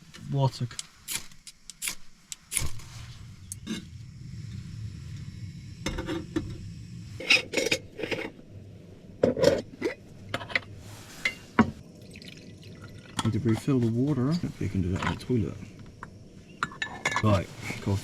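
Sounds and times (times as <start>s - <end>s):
steady low hum: 0.0s - 18.0s
pots and cups clinking: 9.2s - 13.7s, 16.6s - 17.9s.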